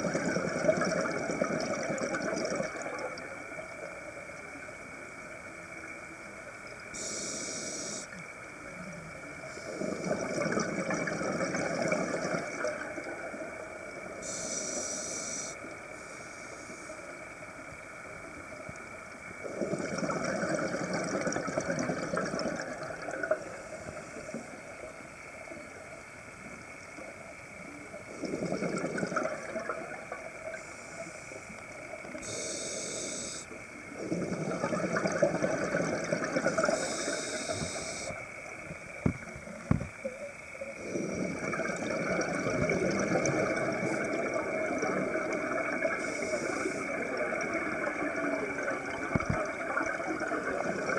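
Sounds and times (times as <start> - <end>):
regulator inhale hisses: 14.2 - 17.0, 32.2 - 33.5, 36.7 - 38.2, 46.0 - 47.0
bubbling exhale rushes: 19.4 - 23.2, 28.1 - 29.8, 34.0 - 38.2, 40.8 - 50.9.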